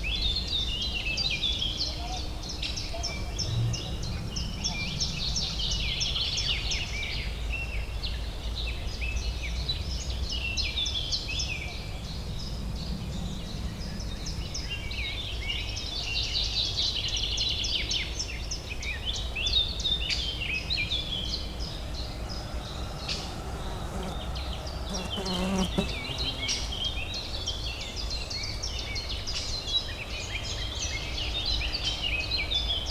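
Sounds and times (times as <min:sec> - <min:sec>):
low urban hum: 0:19.1 - 0:32.8.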